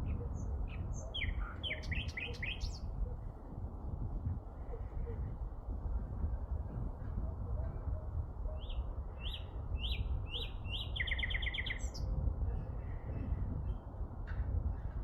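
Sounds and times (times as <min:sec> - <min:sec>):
songbird singing: 0:00.0 - 0:03.0, 0:08.5 - 0:12.2.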